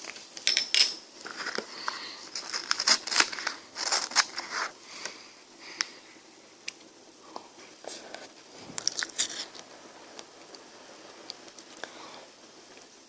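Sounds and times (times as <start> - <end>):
ice cream bites and crunches: 8.8 - 9.5.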